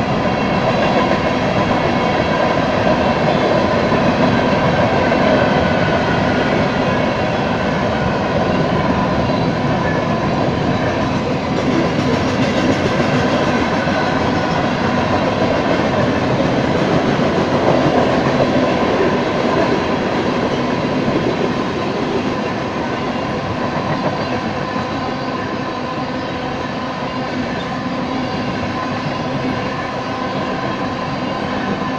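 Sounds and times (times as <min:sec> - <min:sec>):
freight train wheels clattering: 0:08.4 - 0:24.6.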